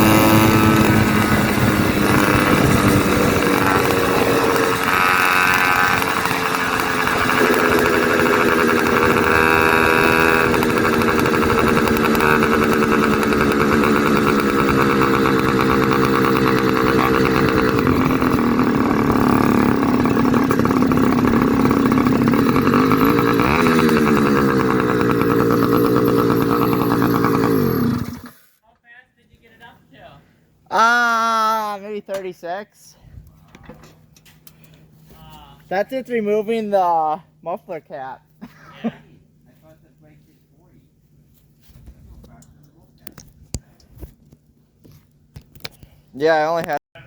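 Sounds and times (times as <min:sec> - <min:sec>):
two-stroke bicycle engine revving: 0:00.0 - 0:28.6.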